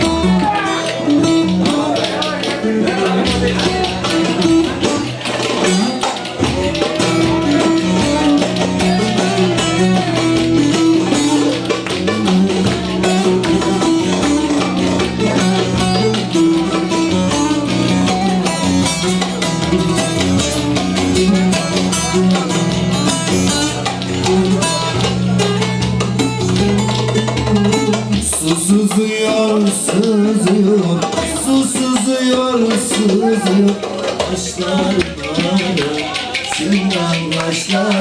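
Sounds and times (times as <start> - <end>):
percussion strokes: 0.0 - 38.0
plucked string melody: 0.0 - 38.0
low bass: 6.4 - 28.8.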